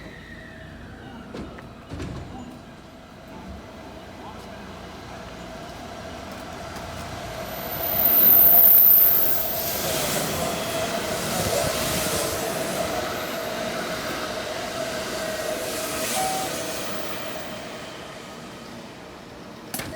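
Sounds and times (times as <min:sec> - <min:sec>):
electric train running past: 0:02.8 - 0:19.8
high-pitched wheel squeal: 0:07.5 - 0:11.5
steady tone: 0:07.5 - 0:18.3.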